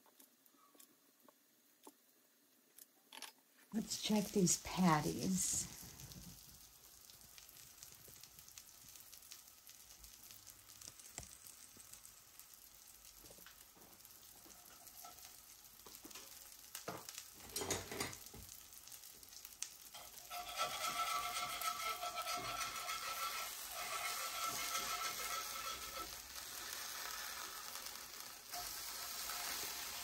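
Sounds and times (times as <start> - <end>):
meat patties sizzling in a skillet: 3.8 - 30.0
spatula scraping and knocking a pan: 20.0 - 30.0.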